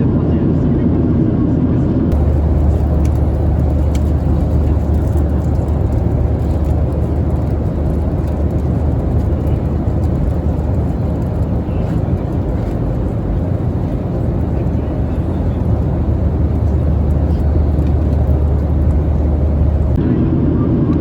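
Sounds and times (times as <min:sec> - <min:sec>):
airplane cabin engine rumble: 0:02.1 - 0:20.0.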